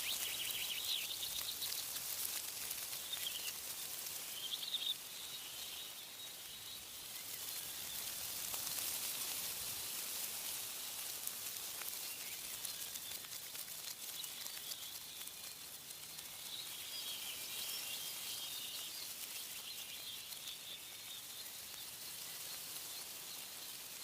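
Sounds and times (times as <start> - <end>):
bird chirp: 0.0 - 2.0, 2.9 - 8.8, 14.0 - 23.8
faint birdsong: 0.0 - 10.0, 10.6 - 24.0
wind rustling tree leaves: 0.0 - 24.0.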